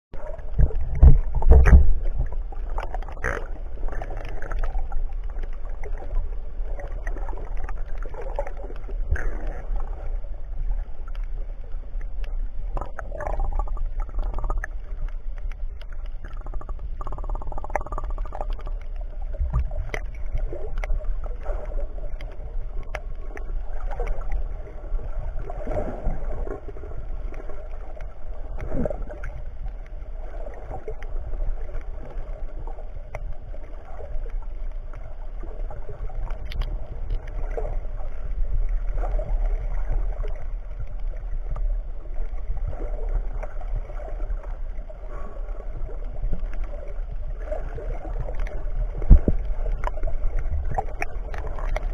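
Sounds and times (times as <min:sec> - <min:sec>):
water gurgling and splashing: 0:00.1 - 0:51.9
small clicks: 0:36.2 - 0:37.6.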